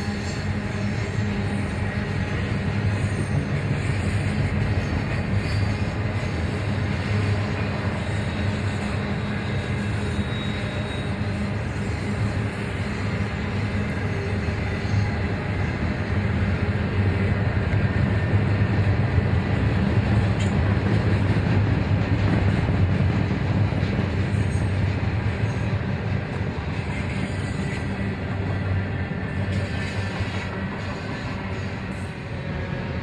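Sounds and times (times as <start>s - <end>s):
train rumbling by: 0.0s - 33.0s.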